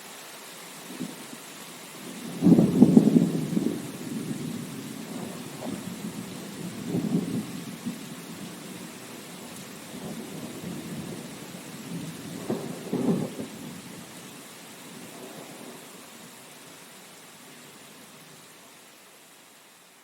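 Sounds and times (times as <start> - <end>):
steady rain hissing: 0.0 - 20.0
rolling thunder rumbles: 2.2 - 14.1.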